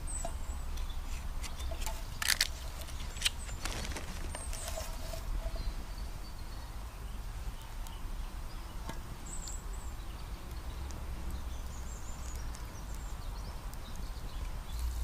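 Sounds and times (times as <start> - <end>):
campfire crackling and popping: 1.4 - 4.9, 8.7 - 15.0.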